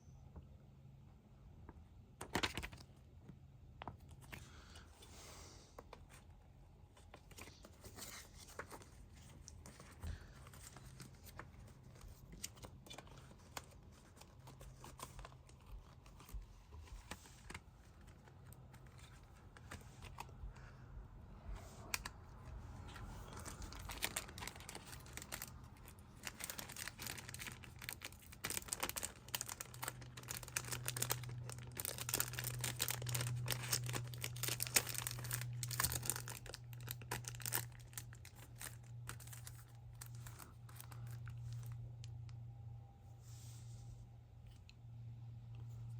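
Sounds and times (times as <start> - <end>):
low steady hum: 0.0 - 45.9
packaging tearing and crinkling: 23.2 - 41.4.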